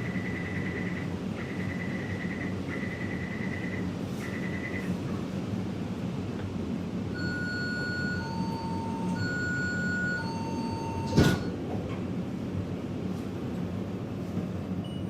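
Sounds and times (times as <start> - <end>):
train humming at a station: 0.0 - 15.0
sliding doors closing with a thump: 11.0 - 12.1.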